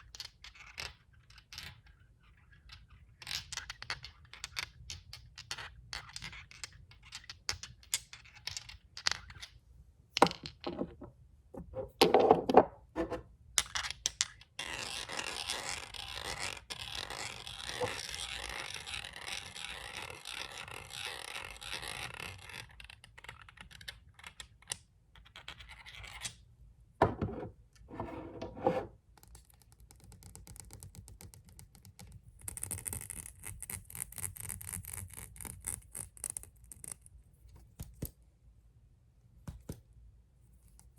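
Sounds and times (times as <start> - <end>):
scratching on glass: 27.2 - 29.0.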